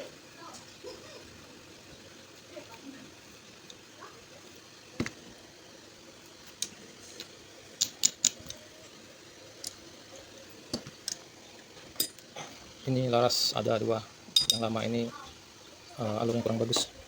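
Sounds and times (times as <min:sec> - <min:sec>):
metal parts clicking and tapping: 0:06.6 - 0:08.6, 0:12.0 - 0:12.4, 0:14.4 - 0:14.7.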